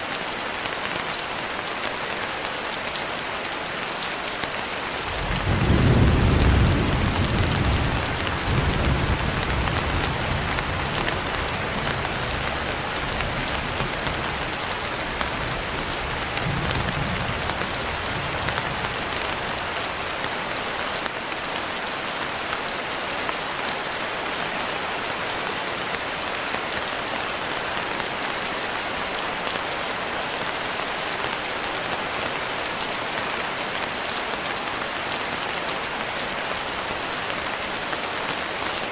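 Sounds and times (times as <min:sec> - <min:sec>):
steady rain falling: 0:00.0 - 0:38.9
thunder rumbling: 0:05.1 - 0:14.4.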